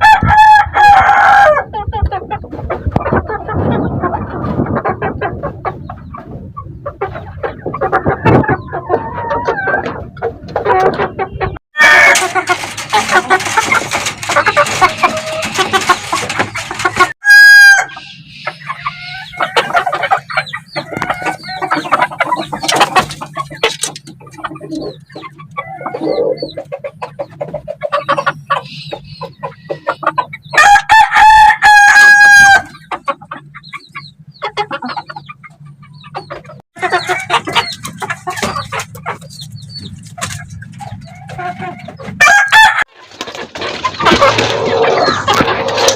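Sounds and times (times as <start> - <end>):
rooster crowing: 0.0 - 1.7, 17.2 - 18.0, 30.6 - 32.7, 42.2 - 42.9
chickens clucking: 0.0 - 45.9.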